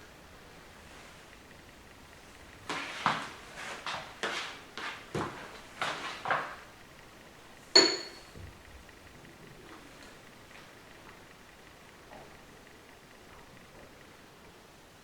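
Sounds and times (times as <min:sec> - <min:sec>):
sharp metallic clink: 0:07.8 - 0:08.3.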